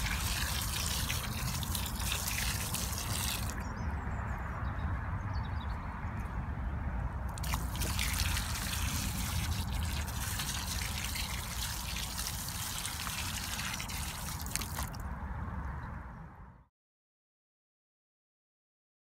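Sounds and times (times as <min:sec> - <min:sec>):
water running and trickling: 0:00.0 - 0:03.6, 0:07.4 - 0:15.0.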